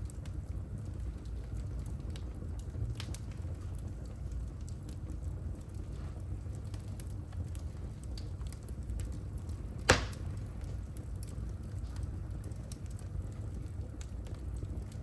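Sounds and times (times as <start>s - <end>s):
wood fire crackling: 0.0s - 15.0s
loud sharp pop: 9.9s - 10.4s.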